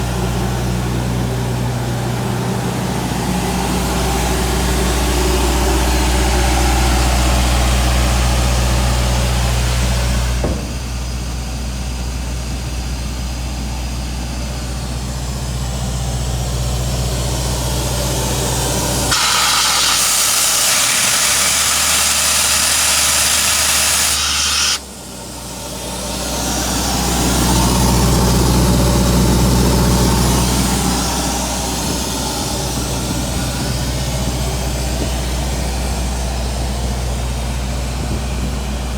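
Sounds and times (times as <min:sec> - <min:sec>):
compressor diesel engine drone: 0:00.0 - 0:38.9
loud air hiss: 0:19.0 - 0:25.0.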